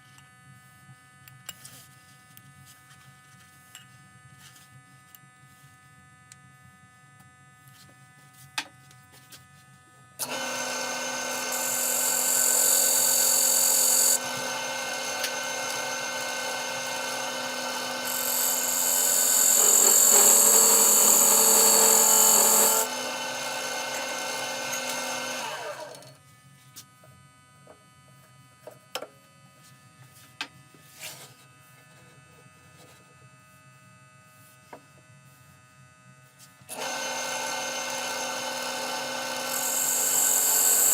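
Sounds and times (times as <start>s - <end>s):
wood lathe running: 10.2s - 26.1s, 36.7s - 40.9s.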